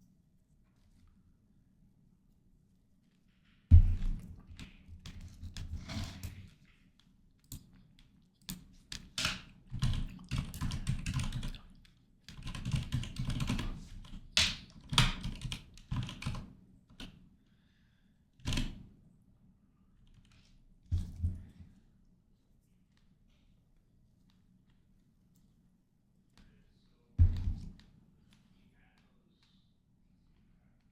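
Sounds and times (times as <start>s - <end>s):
computer keyboard typing: 9.0s - 17.2s.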